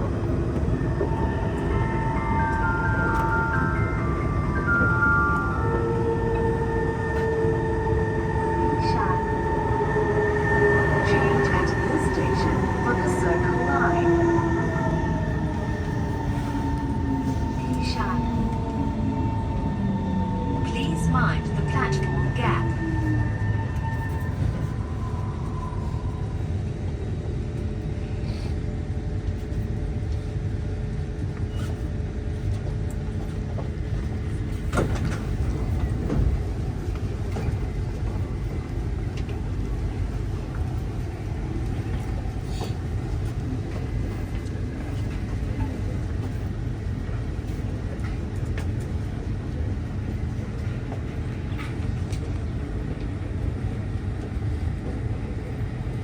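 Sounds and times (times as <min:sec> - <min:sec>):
train low rumble: 0:00.0 - 0:56.0.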